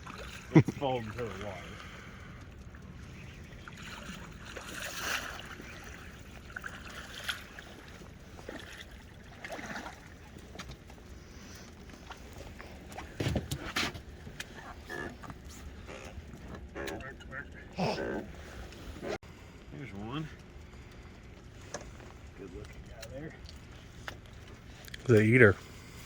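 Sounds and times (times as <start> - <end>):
steady low rumble: 0.1 - 4.6, 7.5 - 26.0.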